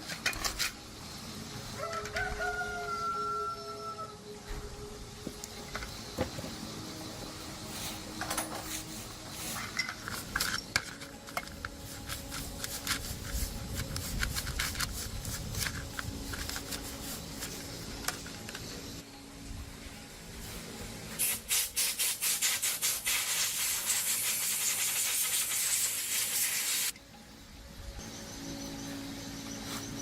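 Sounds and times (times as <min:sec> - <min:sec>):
metal parts and tools clinking: 0:00.0 - 0:00.9, 0:07.9 - 0:19.0.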